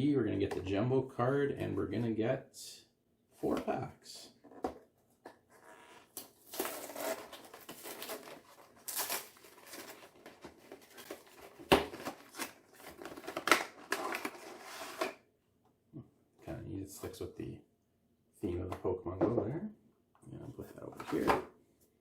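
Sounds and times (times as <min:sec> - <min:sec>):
sharp packaging cracks: 0:06.2 - 0:14.4
packaging tearing and crinkling: 0:06.2 - 0:15.2.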